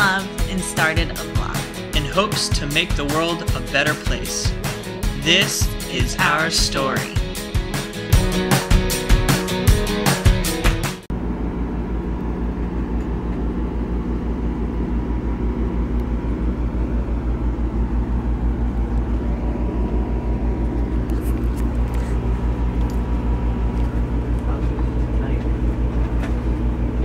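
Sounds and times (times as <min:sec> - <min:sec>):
music track: 0:00.0 - 0:11.1
vehicle engine rumbling: 0:11.1 - 0:27.0.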